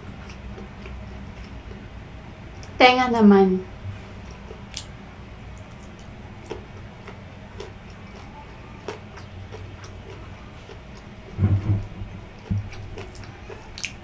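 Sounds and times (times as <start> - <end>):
low steady hum: 0.0 - 14.0
chewing crunches: 4.3 - 14.0.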